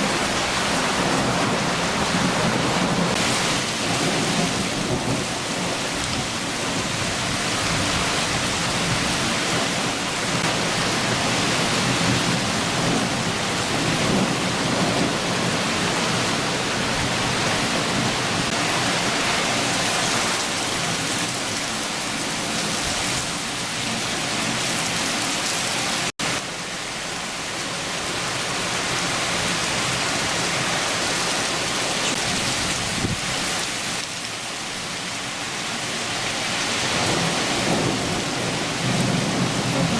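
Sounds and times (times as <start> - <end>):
distant thunder rumble: 0.0 - 19.0, 37.0 - 39.9
heavy rain downpour: 0.0 - 39.9.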